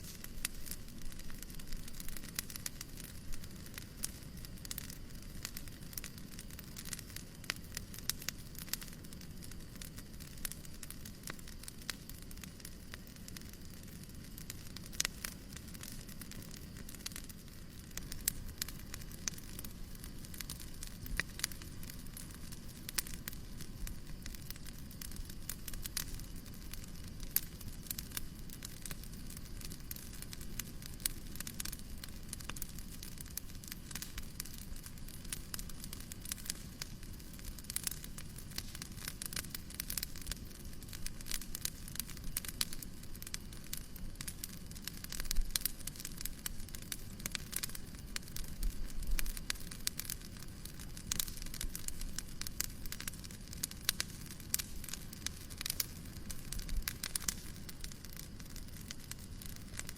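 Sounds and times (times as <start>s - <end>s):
low rushing hiss: 0.0s - 11.9s
fire crackling and popping: 0.0s - 59.9s.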